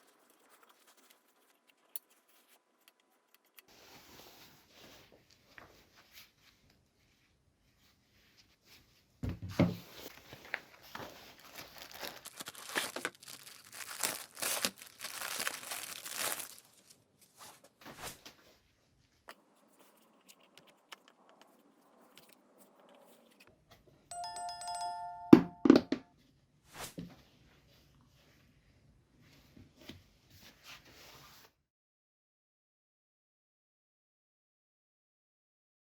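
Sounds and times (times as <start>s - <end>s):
objects rustling and clicking: 9.8s - 18.4s
short steady ringing tone: 24.1s - 26.0s.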